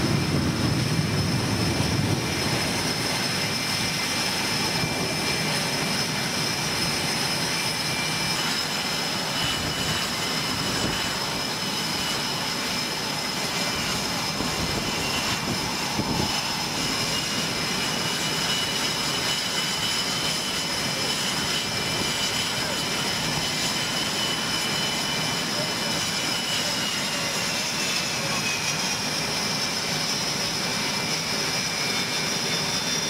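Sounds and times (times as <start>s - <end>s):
jet engines whining: 0.0s - 33.0s.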